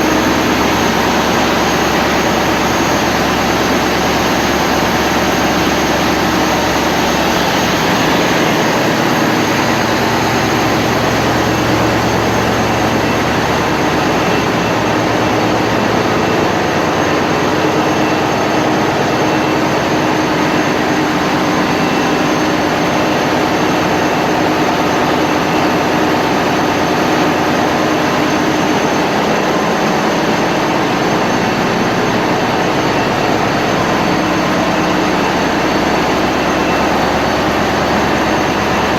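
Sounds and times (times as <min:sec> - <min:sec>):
marine diesel engine running: 0:00.0 - 0:38.9.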